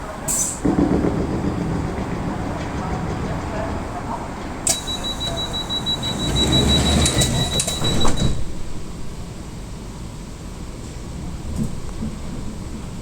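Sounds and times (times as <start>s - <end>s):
sliding doors clunking shut: 0.6s - 9.4s, 10.8s - 13.0s
steady low hum: 0.6s - 13.0s
rapid high-pitched beeping: 4.7s - 8.3s.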